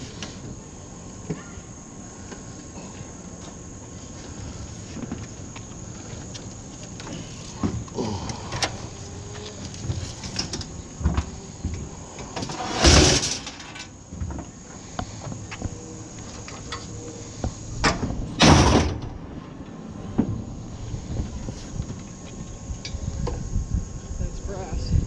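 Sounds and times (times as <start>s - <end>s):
scrap scraping: 12.4s - 13.8s
scrap metal knocking and clattering: 12.4s - 13.9s.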